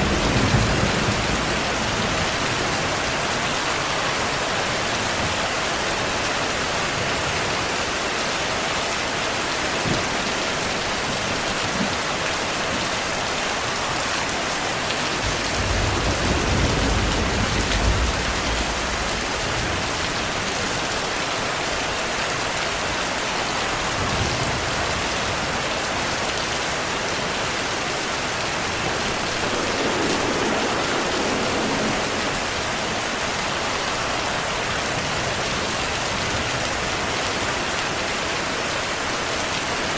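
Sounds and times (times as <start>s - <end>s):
distant thunder rumble: 0.0s - 5.5s, 15.1s - 20.6s, 27.6s - 35.5s
heavy rain falling: 0.0s - 39.9s.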